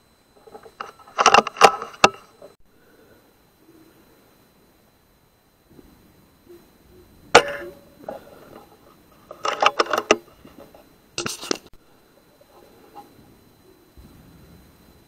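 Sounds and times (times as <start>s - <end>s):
clicking and clatter: 0.4s - 2.6s, 7.4s - 11.7s.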